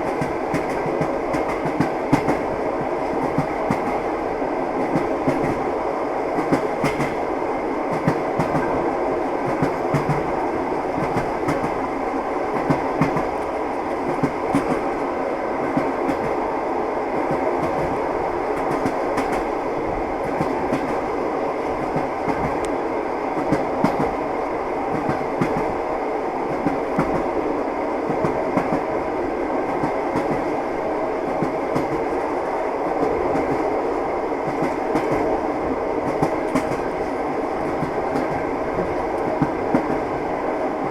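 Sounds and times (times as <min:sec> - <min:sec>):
train wheels clattering over rail joints: 0:06.4 - 0:07.2.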